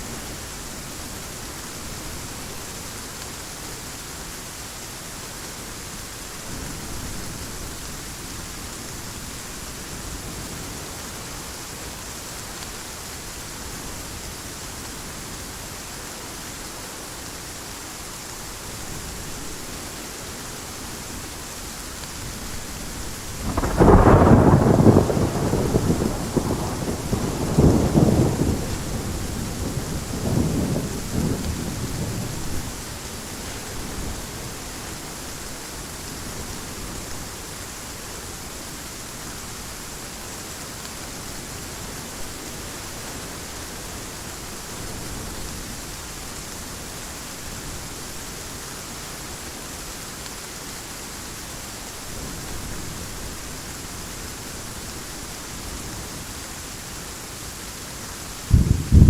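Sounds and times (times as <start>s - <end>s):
heavy rain hissing: 0.0s - 59.0s
thunder clap and rumble: 23.4s - 32.6s, 58.5s - 59.0s.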